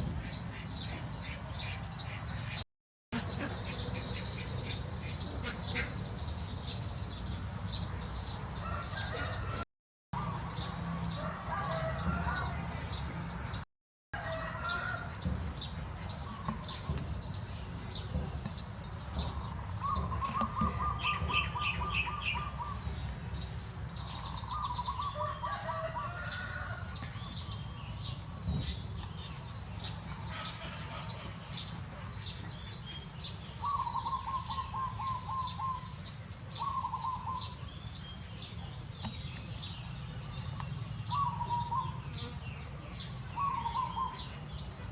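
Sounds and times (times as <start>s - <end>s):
birds chirping: 3.2s - 9.6s, 14.2s - 44.9s
lower trilling bird call: 18.4s - 44.9s.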